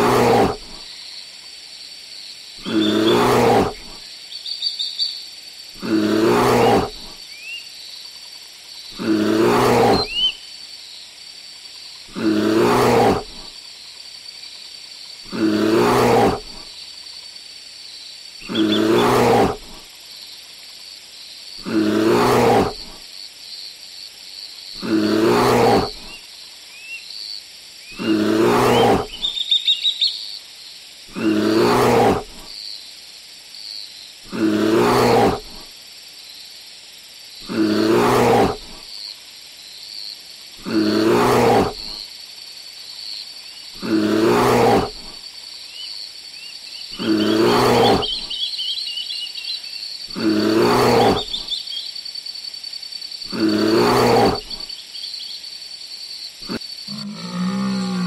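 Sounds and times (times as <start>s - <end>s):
large animal deep roaring: 0.0s - 0.8s, 2.6s - 4.0s, 5.8s - 7.1s, 9.0s - 10.2s, 12.1s - 13.5s, 15.3s - 16.6s, 18.4s - 19.8s, 21.6s - 23.0s, 24.8s - 26.1s, 28.0s - 29.2s, 31.1s - 32.4s, 34.3s - 35.6s, 37.4s - 38.8s, 40.6s - 42.0s, 43.8s - 45.1s, 47.0s - 48.3s, 50.1s - 51.4s, 53.3s - 54.6s, 56.4s - 58.0s
faint bird chirps: 2.6s - 5.4s, 7.2s - 9.0s, 9.8s - 10.7s, 18.4s - 19.1s, 26.0s - 27.2s, 27.8s - 30.4s, 45.7s - 50.2s, 51.0s - 52.0s, 54.6s - 55.5s.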